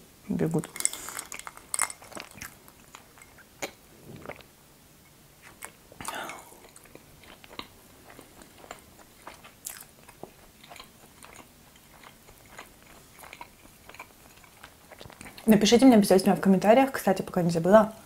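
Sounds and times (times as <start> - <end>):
chewing crunchy waffle: 0.6 - 4.5, 5.4 - 15.5.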